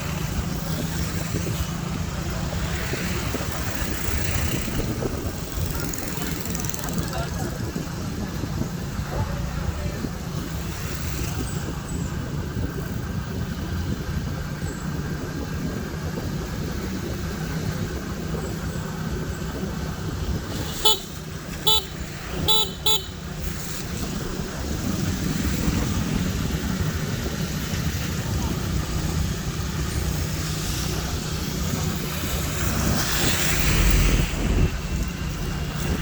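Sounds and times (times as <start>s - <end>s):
vehicle rumbling along road: 0.0s - 36.0s
vehicle horn beeping: 20.6s - 23.2s.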